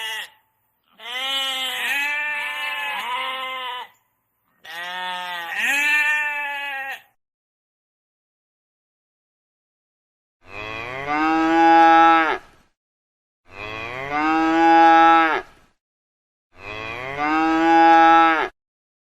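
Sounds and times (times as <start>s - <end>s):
cow mooing: 13.5s - 15.5s, 16.6s - 18.5s.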